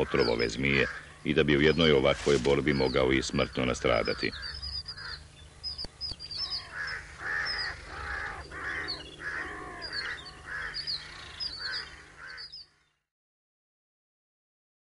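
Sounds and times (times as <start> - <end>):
birds cawing harshly: 0.0 - 13.0
high bird chirps: 2.7 - 12.8.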